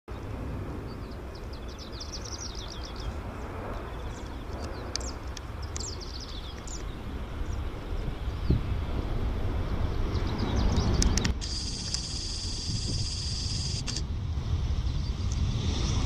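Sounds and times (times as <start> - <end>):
small birds chirping: 0.1 - 8.7, 9.7 - 13.9
steady low rumble: 0.1 - 16.0.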